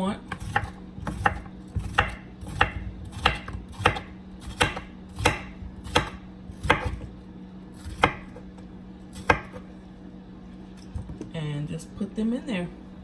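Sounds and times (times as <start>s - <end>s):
knife slicing cucumber: 0.2s - 7.2s, 7.8s - 8.5s, 9.1s - 9.7s.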